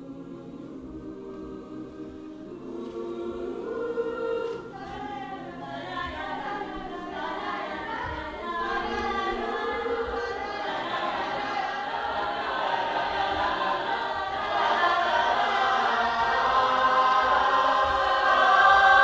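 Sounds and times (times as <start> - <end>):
choir singing in harmony: 0.0 - 19.0.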